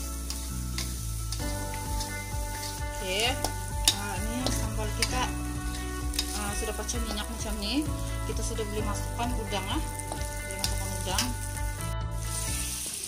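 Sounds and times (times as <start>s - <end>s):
paste sizzling in oil: 0.0s - 13.0s
metal spatula scraping wok: 0.2s - 8.6s.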